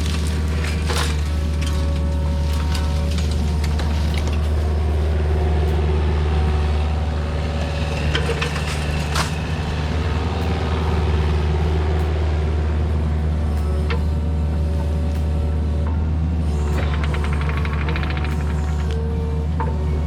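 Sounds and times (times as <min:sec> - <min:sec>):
heavy machine engine running: 0:00.0 - 0:20.0
sharp cracks of wood: 0:16.8 - 0:19.2.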